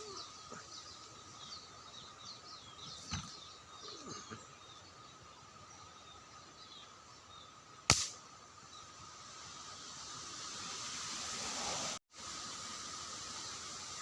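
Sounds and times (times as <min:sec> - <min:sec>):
steady hiss: 0:04.8 - 0:14.0
air rifle shot: 0:07.9 - 0:08.2.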